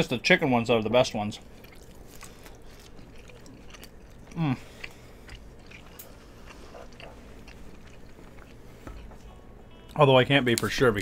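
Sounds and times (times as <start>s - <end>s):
person chewing: 1.4s - 9.2s.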